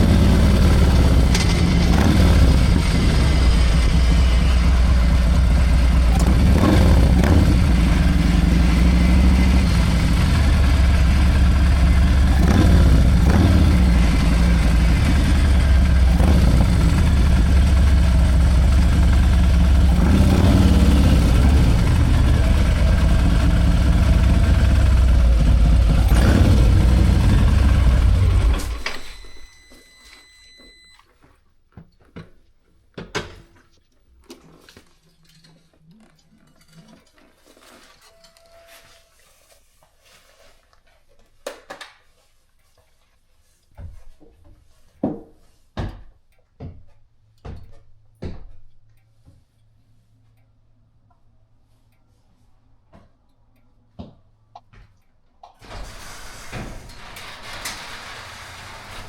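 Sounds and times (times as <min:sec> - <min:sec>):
motorcycle engine running loudly: 0:00.0 - 0:28.8.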